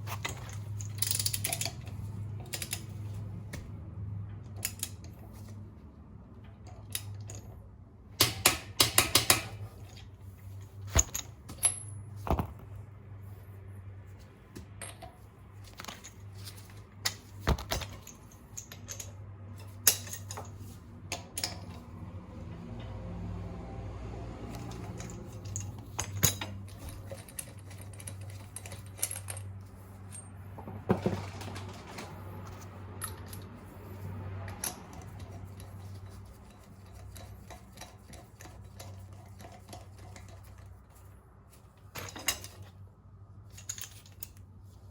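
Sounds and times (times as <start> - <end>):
hand tools clinking on lug nuts: 14.8 - 21.9, 24.5 - 40.6.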